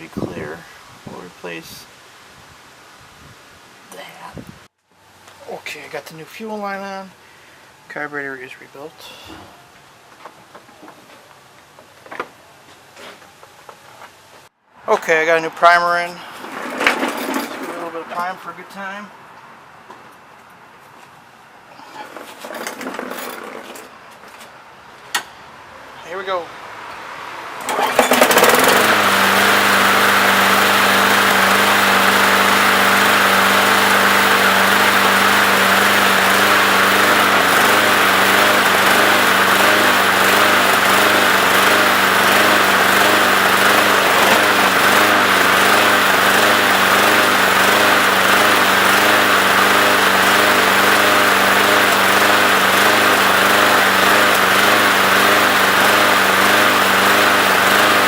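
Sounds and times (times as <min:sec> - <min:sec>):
lawnmower engine running: 0:16.3 - 0:18.4, 0:27.6 - 0:58.0.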